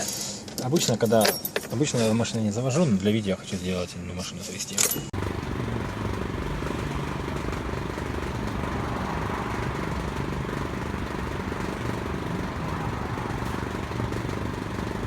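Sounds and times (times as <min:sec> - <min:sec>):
car engine running: 0:05.2 - 0:15.0.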